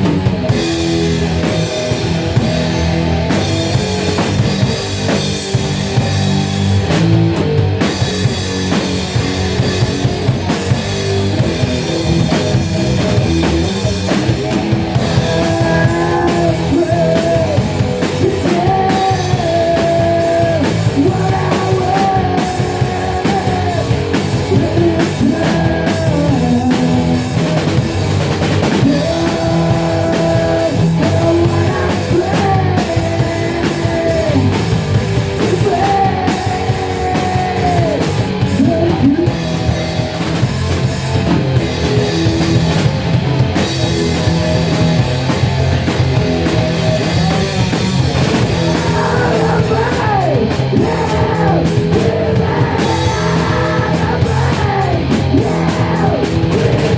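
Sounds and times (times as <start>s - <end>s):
rock band playing: 0.0s - 56.9s
person singing: 14.9s - 27.6s, 28.8s - 39.6s, 48.3s - 56.9s.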